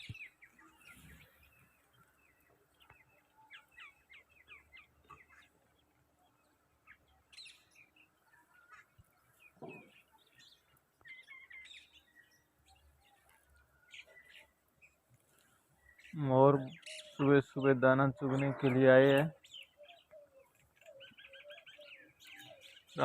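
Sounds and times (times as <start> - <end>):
faint bird chirping: 0.0 - 23.0.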